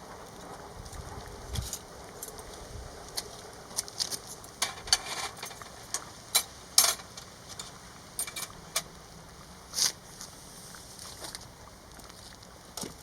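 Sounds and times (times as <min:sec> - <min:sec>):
metal utensils clinking and scraping: 0:04.6 - 0:08.9.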